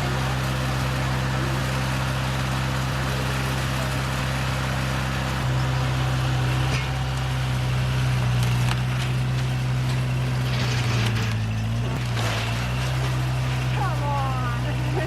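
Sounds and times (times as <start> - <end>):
heavy machinery engine running: 0.0 - 15.0.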